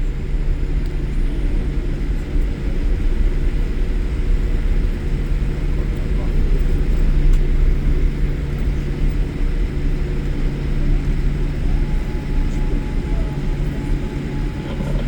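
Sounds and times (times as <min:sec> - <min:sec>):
jet engine hum: 0:00.0 - 0:15.0
low rumble: 0:06.2 - 0:15.0
faint high tone: 0:11.8 - 0:15.0.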